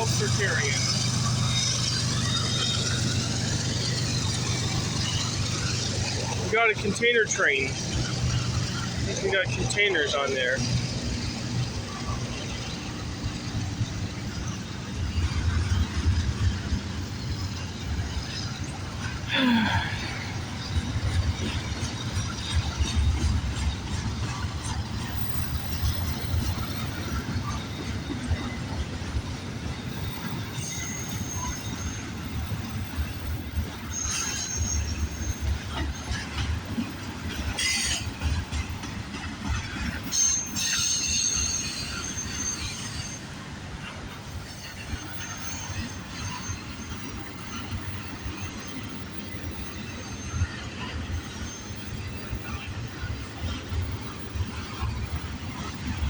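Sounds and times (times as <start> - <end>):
freight train rumbling on rails: 0.0 - 56.0
high-pitched wheel squeals: 25.0 - 38.8, 39.5 - 43.5.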